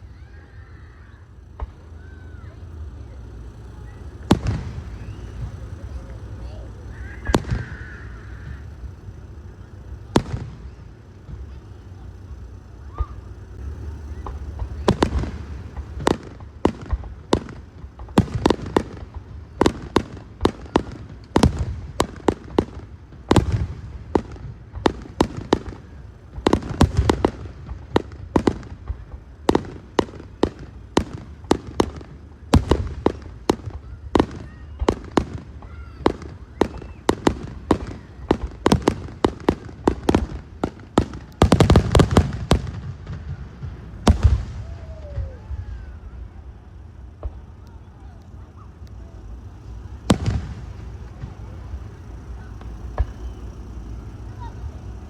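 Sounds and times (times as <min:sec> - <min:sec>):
fireworks bangs: 0:00.0 - 0:55.0.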